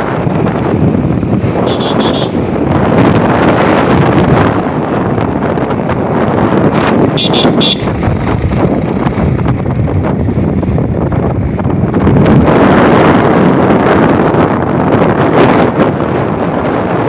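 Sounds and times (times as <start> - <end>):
motorbike engine: 0.0 - 11.6
road noise: 0.0 - 17.0
wind buffeting microphone: 0.0 - 17.0
horn beeps: 1.7 - 2.6, 7.1 - 8.0.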